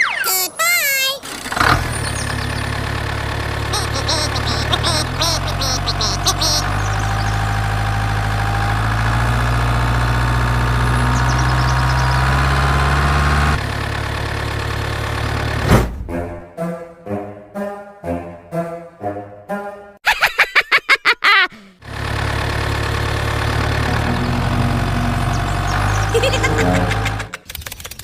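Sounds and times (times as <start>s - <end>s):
engine idling and revving: 1.2s - 3.8s, 6.6s - 15.8s, 21.8s - 27.4s.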